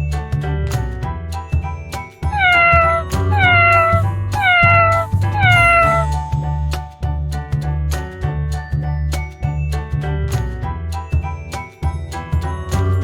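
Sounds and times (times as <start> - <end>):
upbeat children's music: 0.0 - 13.0
cat meowing: 2.3 - 6.2.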